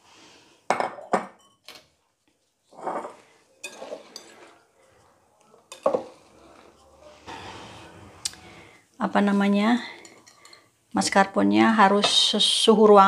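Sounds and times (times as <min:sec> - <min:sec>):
utensil scraping a mixing bowl: 0:06.0 - 0:08.5.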